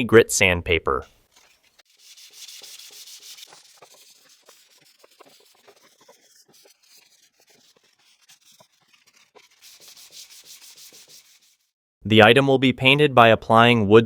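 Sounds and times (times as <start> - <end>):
sandpaper rubbing on wood: 1.2 - 11.7.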